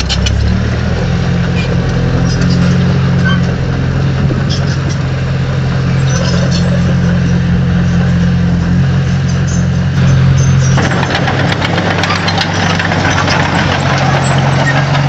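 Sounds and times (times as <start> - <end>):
sharp clicks and rattles: 0.0 - 0.7, 9.2 - 15.0
diesel engine running: 0.0 - 15.0.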